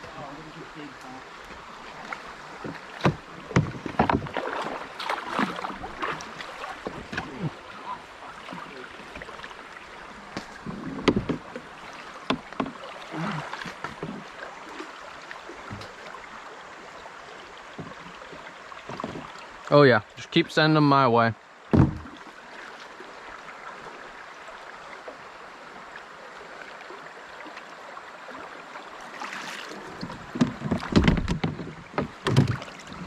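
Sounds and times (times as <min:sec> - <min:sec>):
paddle splashes: 0:00.0 - 0:20.3, 0:21.6 - 0:33.0
knocks against kayak hull: 0:02.6 - 0:04.4, 0:10.3 - 0:12.8, 0:17.8 - 0:19.4, 0:21.7 - 0:22.2, 0:30.0 - 0:32.7.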